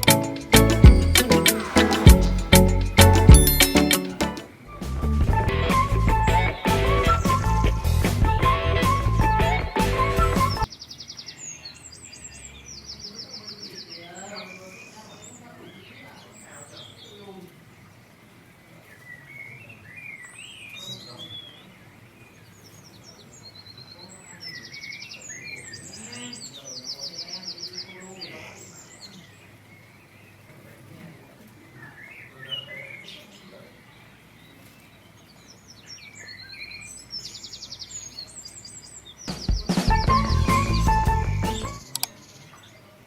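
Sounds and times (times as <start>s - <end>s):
songbirds chirping: 10.5s - 43.0s.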